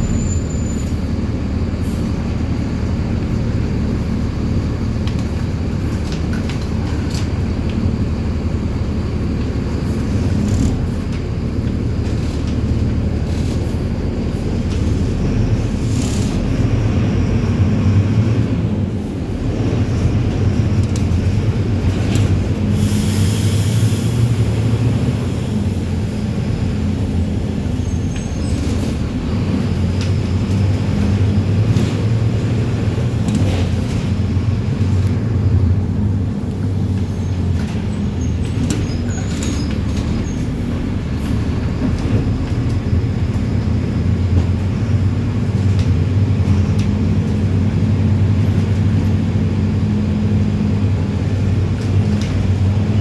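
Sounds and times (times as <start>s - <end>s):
bus diesel engine running: 0.0s - 53.0s
hiss of air: 22.7s - 24.4s.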